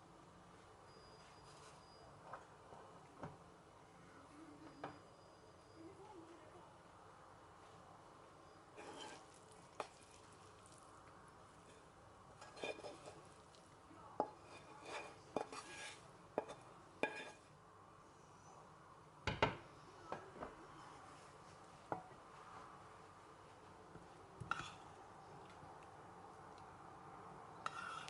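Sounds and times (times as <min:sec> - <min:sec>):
scraping or stirring in pot: 0:08.8 - 0:10.7, 0:11.6 - 0:13.6, 0:14.2 - 0:17.5, 0:24.5 - 0:24.9, 0:27.6 - 0:28.0.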